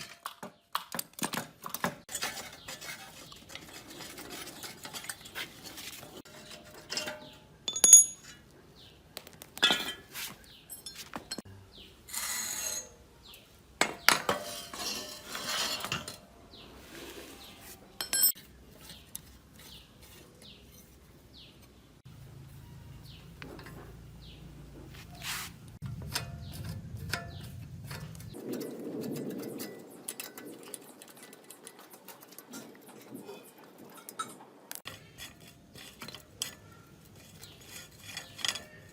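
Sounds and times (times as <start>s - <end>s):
metal parts and tools clinking: 0.0s - 8.5s, 9.6s - 11.5s, 13.9s - 16.3s, 17.9s - 21.7s, 26.0s - 38.9s
short scrapes: 24.8s - 25.8s.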